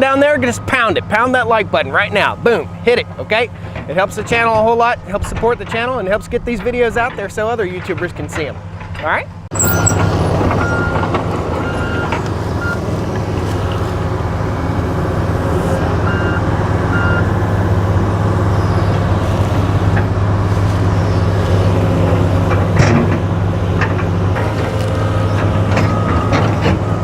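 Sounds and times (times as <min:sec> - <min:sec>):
excavator diesel engine running: 0:00.0 - 0:27.0
backup alarm beeps: 0:09.6 - 0:12.8, 0:16.0 - 0:17.4.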